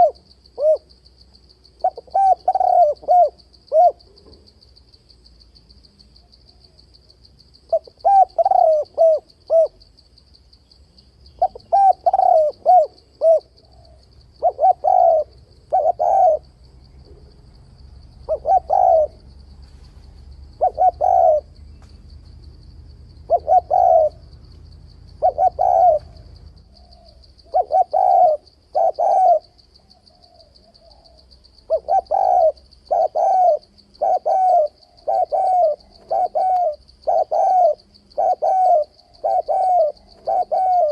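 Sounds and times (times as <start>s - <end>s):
dove cooing: 0.0s - 0.9s, 1.8s - 4.5s, 7.7s - 9.8s, 11.4s - 17.4s, 18.2s - 19.3s, 20.6s - 21.6s, 23.2s - 24.3s, 25.1s - 40.9s.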